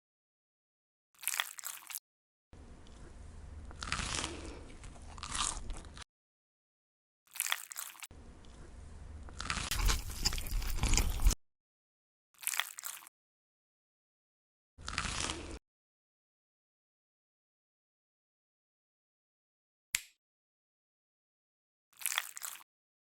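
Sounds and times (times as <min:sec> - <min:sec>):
crunchy chewing: 0:03.7 - 0:06.0, 0:09.3 - 0:11.4
crunchy bite: 0:03.8 - 0:06.0, 0:09.4 - 0:11.4.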